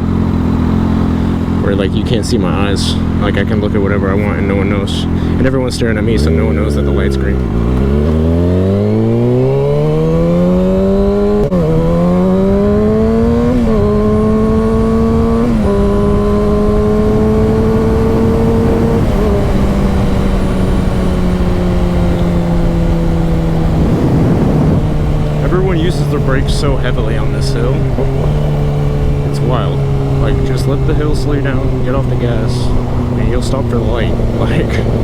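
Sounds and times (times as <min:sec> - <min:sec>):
motorcycle engine accelerating: 0:00.0 - 0:35.0
wind on microphone: 0:10.0 - 0:30.0.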